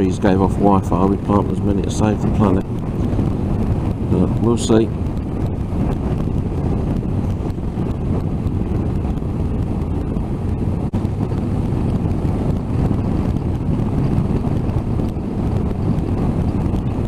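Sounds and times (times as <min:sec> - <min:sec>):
road noise: 0:00.0 - 0:17.0
wind rushing over microphone: 0:00.0 - 0:17.0.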